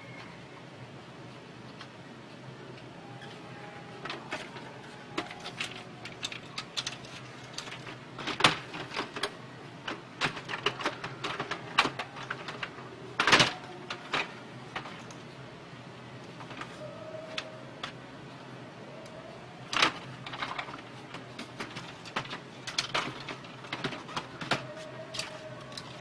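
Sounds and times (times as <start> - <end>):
printer parts clicking and knocking: 4.0 - 15.1, 19.7 - 26.0.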